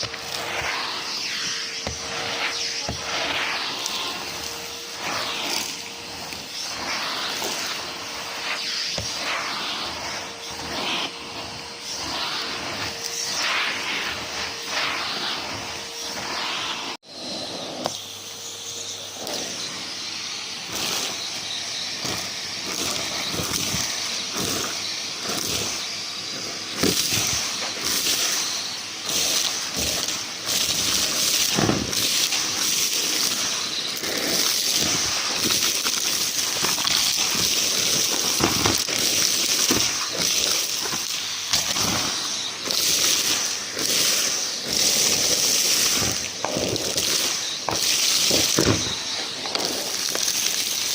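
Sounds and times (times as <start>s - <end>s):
vacuum cleaner running: 0.0s - 50.9s
debris clattering through hose: 29.1s - 50.9s.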